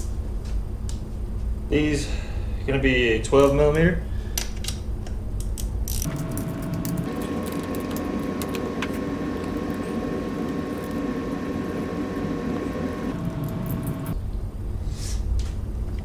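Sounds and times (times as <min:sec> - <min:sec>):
small motor running: 0:06.0 - 0:14.2.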